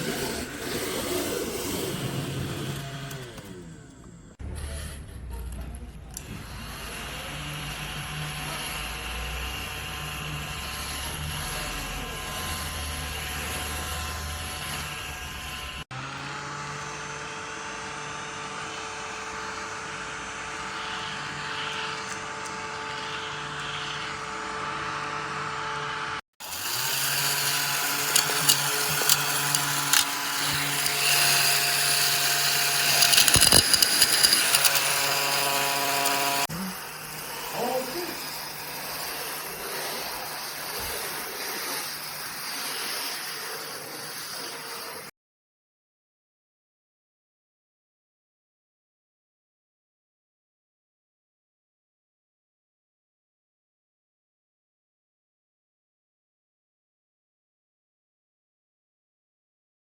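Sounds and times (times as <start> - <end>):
vacuum cleaner motor whine: 0.0 - 4.4, 6.2 - 45.1
sharp clicks and rattles: 27.0 - 36.5.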